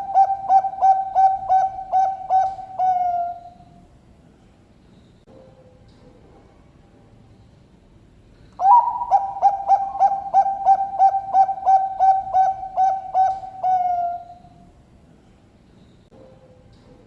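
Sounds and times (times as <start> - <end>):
dove cooing: 0.0 - 3.8, 8.6 - 14.6.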